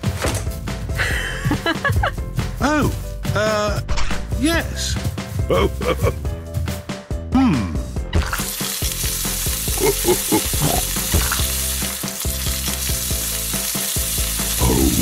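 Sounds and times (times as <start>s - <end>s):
food sizzling on a grill: 8.2s - 15.0s.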